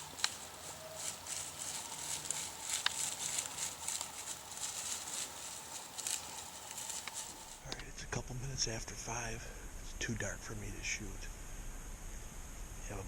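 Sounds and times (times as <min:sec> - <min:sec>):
crackling rustling in dry leaves: 0:00.0 - 0:07.7.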